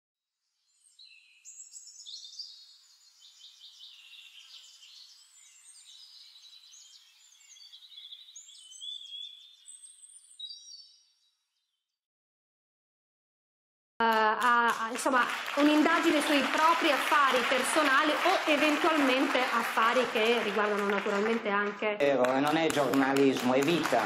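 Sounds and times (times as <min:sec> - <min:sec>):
songbirds chirping and trilling: 0:00.6 - 0:11.9.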